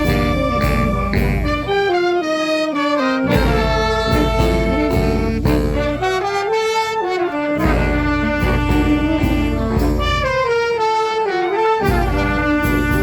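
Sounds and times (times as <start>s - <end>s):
bass drum beat: 0.0s - 1.8s, 3.3s - 6.3s, 7.6s - 10.5s, 11.9s - 13.0s
brass band playing: 0.0s - 13.0s.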